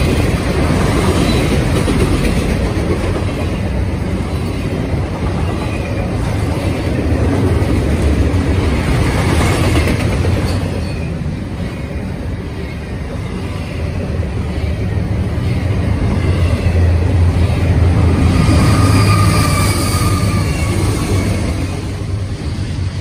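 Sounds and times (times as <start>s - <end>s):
diesel locomotive passing: 0.0s - 23.0s
freight train rumbling past: 0.0s - 23.0s
faint high wheel squeal: 18.4s - 21.5s.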